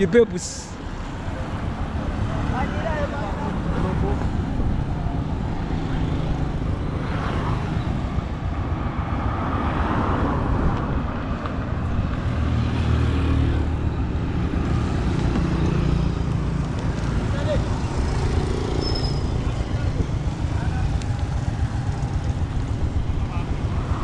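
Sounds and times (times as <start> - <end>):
road noise: 0.0 - 24.0
wind noise: 3.5 - 24.0.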